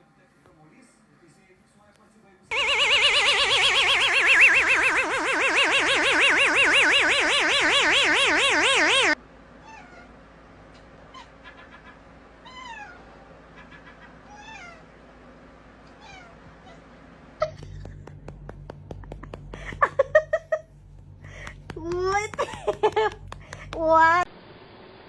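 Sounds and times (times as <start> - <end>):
warbling electronic sound effect: 2.5 - 9.2
low hum: 2.5 - 9.4, 17.0 - 25.0
cat meowing faintly: 14.3 - 14.9, 15.9 - 16.8.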